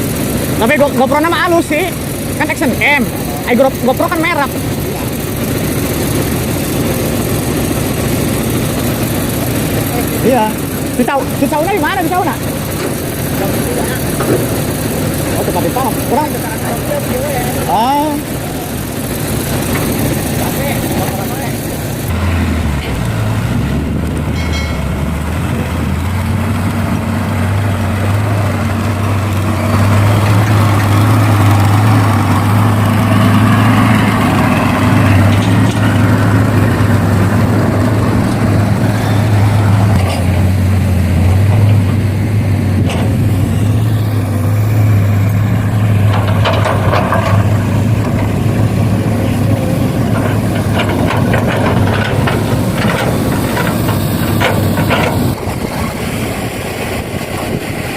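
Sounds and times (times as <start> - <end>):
heavy vehicle engine droning: 0.0 - 57.9
clattering: 24.3 - 25.6, 45.2 - 55.4.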